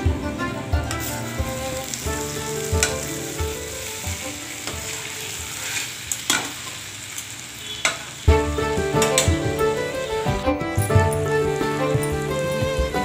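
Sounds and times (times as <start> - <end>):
masala sizzling in a pan: 0.3 - 10.3.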